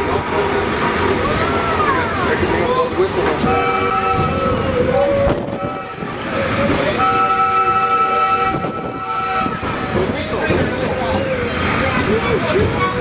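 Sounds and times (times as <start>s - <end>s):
railcar rumbling on rails: 0.0s - 13.0s
railcar horn chord: 3.4s - 10.0s.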